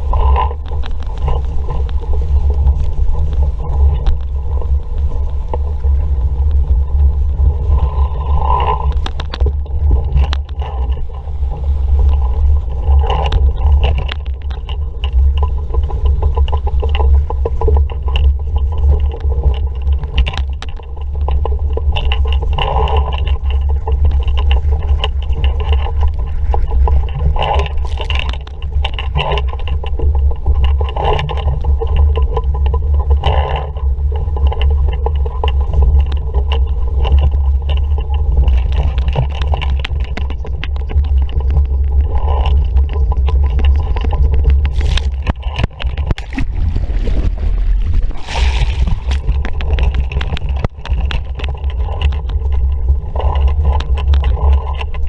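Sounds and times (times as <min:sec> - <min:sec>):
water rushing along hull: 0:00.0 - 0:55.0
wind buffeting microphone: 0:00.0 - 0:55.0
water splashes and slaps: 0:44.5 - 0:52.1.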